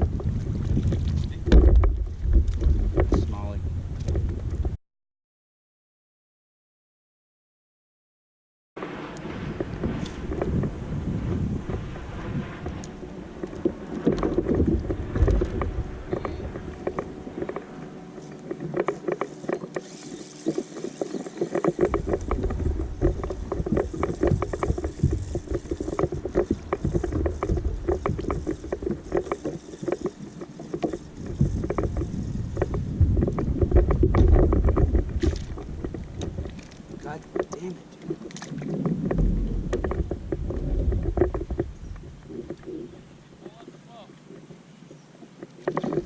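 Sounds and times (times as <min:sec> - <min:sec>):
boat motor hum: 0:00.0 - 0:04.8, 0:08.8 - 0:46.0
water slapping against hull: 0:08.8 - 0:44.6.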